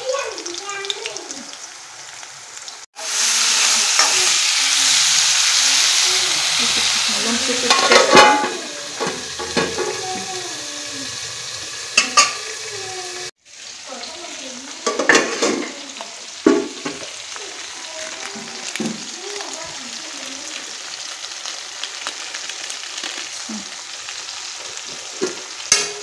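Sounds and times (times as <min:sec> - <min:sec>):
food sizzling in oil: 0:00.0 - 0:26.0
lid and spoon clattering on pan: 0:07.7 - 0:10.1, 0:12.0 - 0:12.5, 0:14.8 - 0:15.8, 0:25.2 - 0:26.0.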